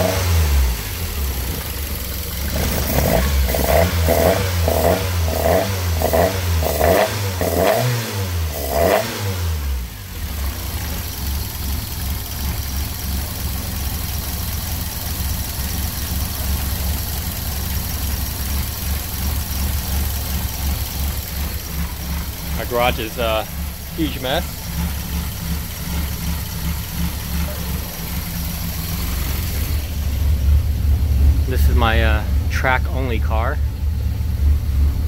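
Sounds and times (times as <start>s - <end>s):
car engine revving and idling: 0.0s - 35.0s.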